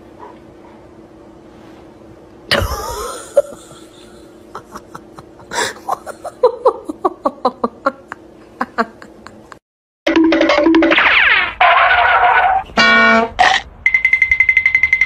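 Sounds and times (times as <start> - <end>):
person laughing: 2.5 - 9.6.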